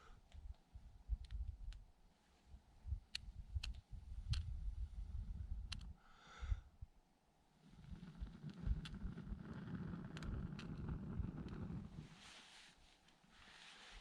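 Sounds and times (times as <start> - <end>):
wind rumble on microphone: 0.4 - 1.9, 2.8 - 6.0, 7.7 - 12.2
fire crackling and popping: 7.6 - 12.2.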